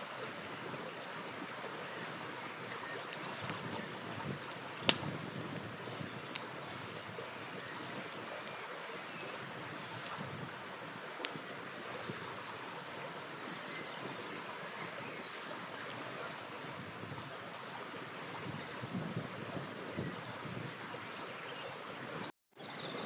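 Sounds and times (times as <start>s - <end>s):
campfire crackling: 0.0s - 13.7s
river water flowing: 0.0s - 23.0s
burning wood popping: 3.0s - 6.6s.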